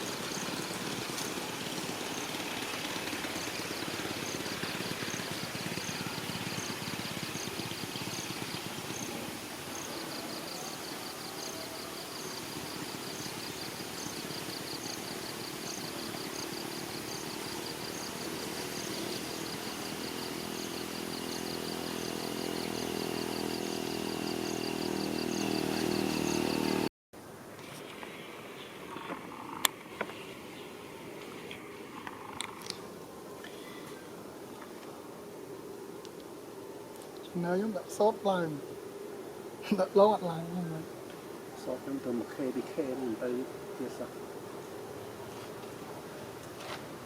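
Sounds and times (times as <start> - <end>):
vehicle engine running: 0.0 - 9.8, 12.5 - 26.9
insects chirping: 0.0 - 47.0.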